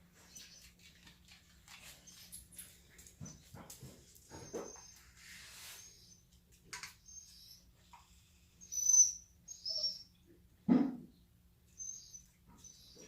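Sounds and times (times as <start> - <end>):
pets squeaking: 4.3 - 5.1, 8.6 - 10.1.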